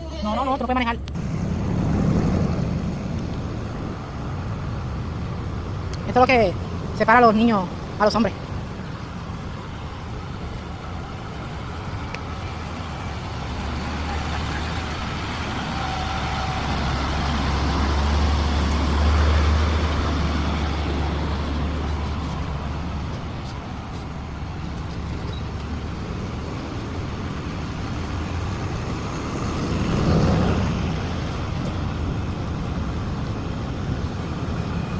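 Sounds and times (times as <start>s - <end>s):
heavy truck engine rumbling: 0.0s - 34.9s.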